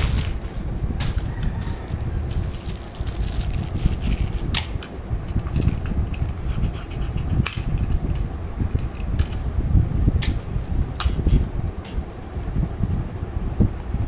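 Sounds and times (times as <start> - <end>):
steady low rumble: 0.0 - 5.8.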